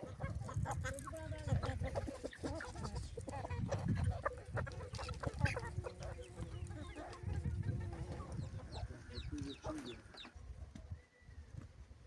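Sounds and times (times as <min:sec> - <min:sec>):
chickens clucking: 0:00.0 - 0:10.4.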